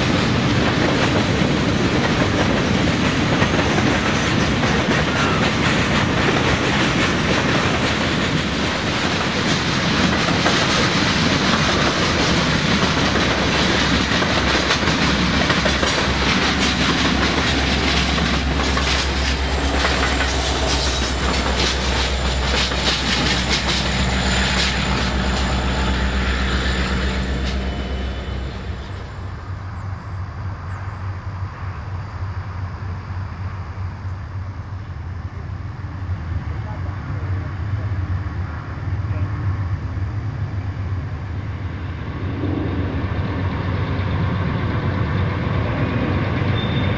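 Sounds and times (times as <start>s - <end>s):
train wheels click-clacking: 0.0s - 28.2s
diesel locomotive engine humming: 0.0s - 46.9s
freight train cars rumbling: 0.0s - 46.9s.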